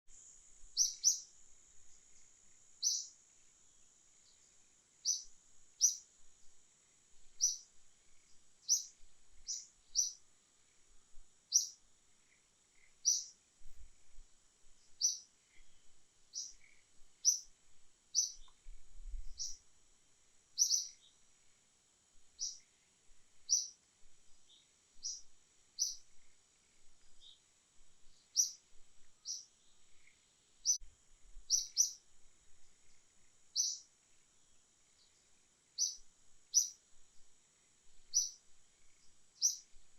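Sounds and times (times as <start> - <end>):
bird chirping: 0.7 - 3.2, 3.8 - 6.1, 7.1 - 13.4, 14.8 - 19.7, 20.6 - 21.3, 22.3 - 22.8, 23.4 - 30.8, 31.4 - 32.0, 32.6 - 36.8, 38.0 - 39.9.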